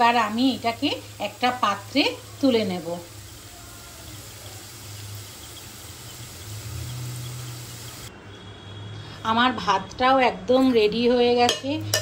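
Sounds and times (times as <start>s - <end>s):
vegetables sizzling in oil: 0.0s - 8.1s.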